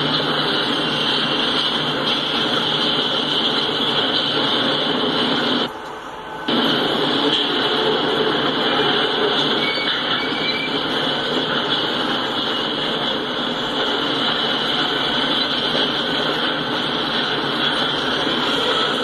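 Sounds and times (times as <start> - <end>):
train cars rolling on rails: 0.0 - 19.0
high-pitched wheel squeal: 5.6 - 11.2.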